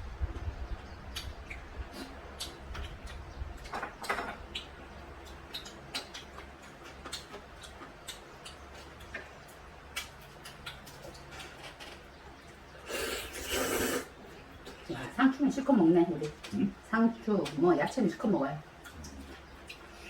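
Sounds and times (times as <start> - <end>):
chewing with clicks and smacks: 0.8 - 12.8, 14.1 - 15.1, 16.1 - 20.0.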